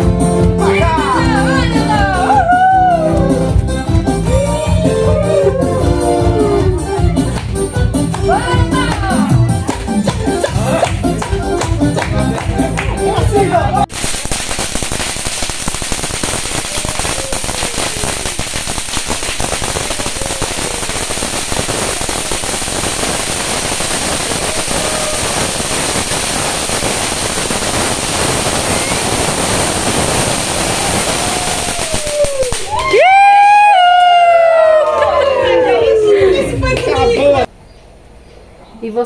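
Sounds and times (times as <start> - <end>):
bonfire crackling and popping: 13.8 - 33.9.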